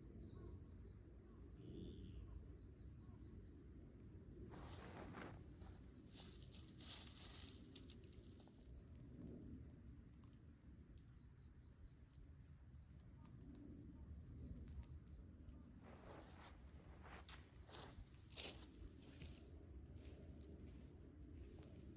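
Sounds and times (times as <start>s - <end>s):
insects chirping: 0.0s - 21.9s
rustling: 4.5s - 8.5s.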